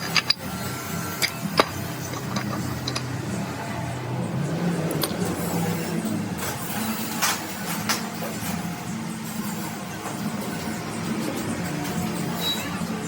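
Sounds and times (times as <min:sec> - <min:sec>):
sharp metallic clicks and knocks: 0:00.0 - 0:00.5, 0:01.2 - 0:03.2.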